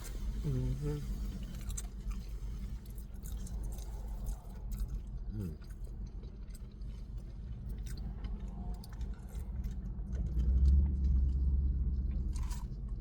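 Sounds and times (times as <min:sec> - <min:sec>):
person chewing crunchy food: 0:03.2 - 0:11.3, 0:12.1 - 0:13.0.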